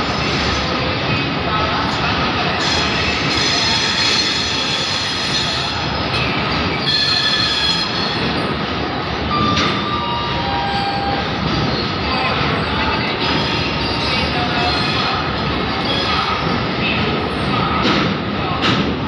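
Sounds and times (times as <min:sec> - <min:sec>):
train wheels on rail: 0:00.0 - 0:19.0
high-pitched wheel squeal: 0:06.7 - 0:08.4.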